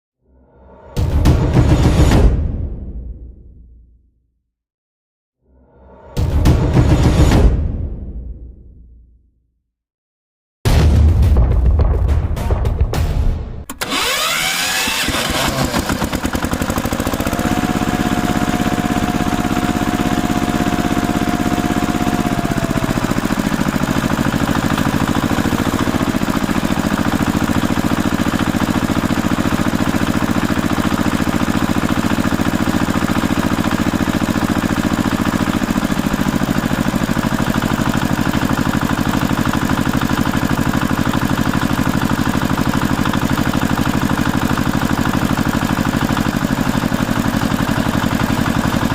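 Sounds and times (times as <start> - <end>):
engine running with whine: 13.7 - 48.9.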